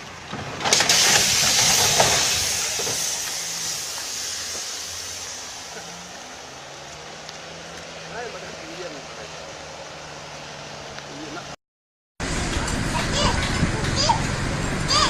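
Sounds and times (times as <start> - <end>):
loud hissing: 0.7 - 7.3.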